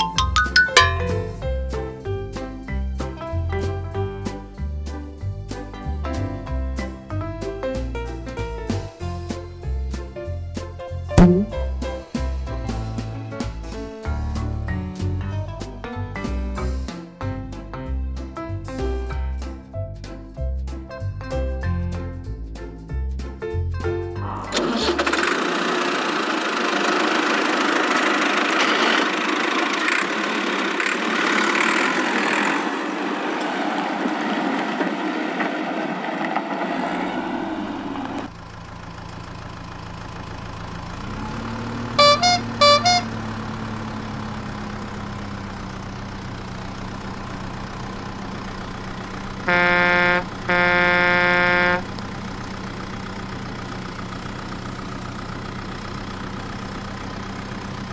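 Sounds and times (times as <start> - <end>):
quick high beeps: 0.0 - 1.3, 11.2 - 11.5, 42.0 - 43.1
horn honking: 11.2 - 11.5, 41.7 - 45.1, 49.0 - 52.4
engine starting and idling: 24.4 - 32.7, 36.8 - 57.9.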